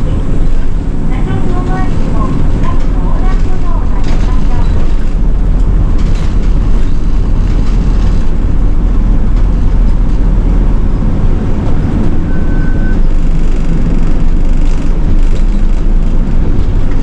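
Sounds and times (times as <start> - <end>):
bus engine rumble: 0.0 - 17.0
road noise: 0.0 - 17.0
short beep: 12.1 - 13.1.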